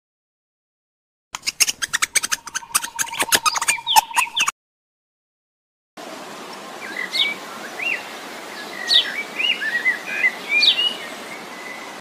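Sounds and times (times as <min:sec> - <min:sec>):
bird whistled chirps: 0:01.4 - 0:04.5
steady background hiss: 0:06.0 - 0:12.0.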